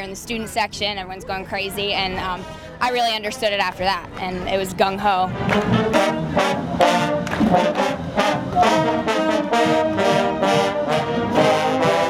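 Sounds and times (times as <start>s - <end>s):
marching band brass playing: 5.1s - 12.0s.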